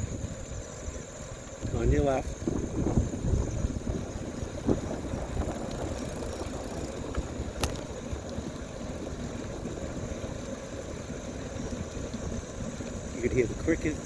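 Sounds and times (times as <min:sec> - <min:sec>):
bicycle tyres rumbling: 0:00.0 - 0:14.0
crickets chirring: 0:00.0 - 0:14.0.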